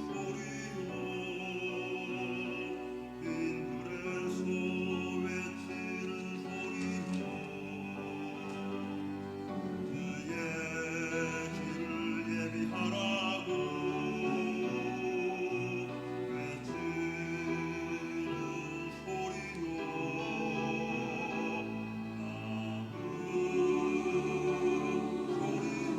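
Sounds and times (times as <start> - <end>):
choir singing slow chords: 0.0 - 25.9.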